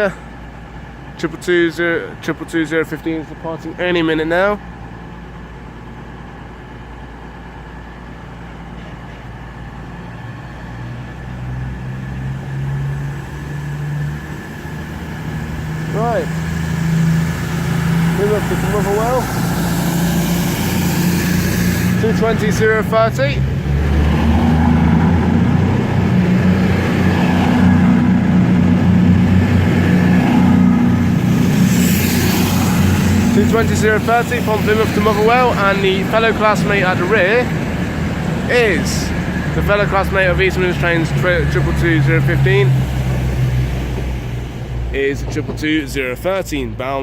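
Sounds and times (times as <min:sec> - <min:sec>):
train diesel engines throttling up: 0:00.0 - 0:46.8.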